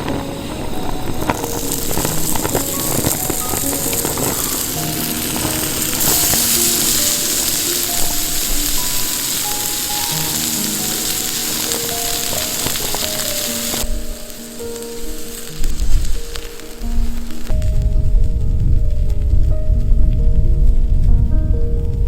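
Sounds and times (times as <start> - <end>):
food sizzling in a pan: 0.0 - 17.6
background music: 0.0 - 22.0.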